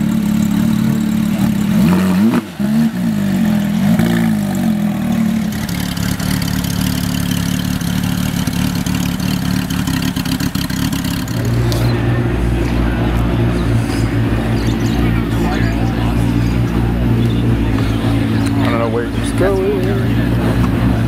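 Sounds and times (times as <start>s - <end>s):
car engine idling: 0.0s - 21.0s
car engine revving: 0.0s - 21.0s.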